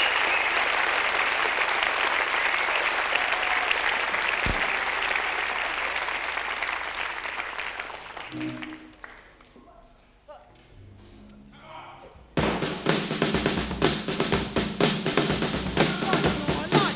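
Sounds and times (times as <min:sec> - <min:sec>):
audience applauding and cheering: 0:00.0 - 0:09.5
low thump: 0:04.4 - 0:04.9.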